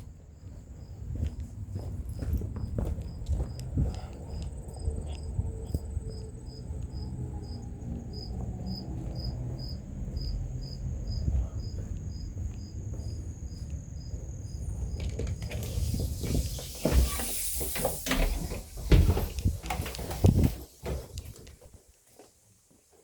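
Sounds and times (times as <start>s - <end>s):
continuous low rumble: 0.0s - 16.6s
insects chirping: 0.0s - 23.0s
high insect trill: 3.0s - 21.1s.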